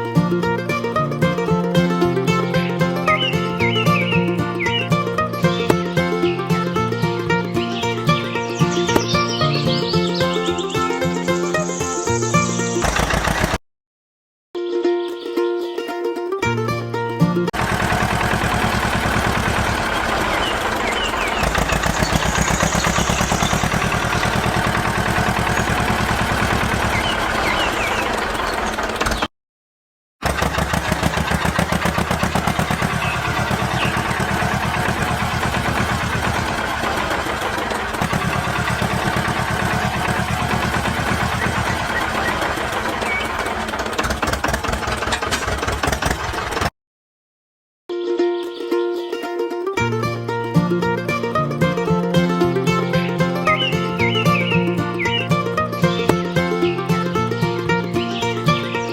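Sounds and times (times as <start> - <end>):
motor running with pulsing beat: 17.6 - 27.7, 31.4 - 42.8.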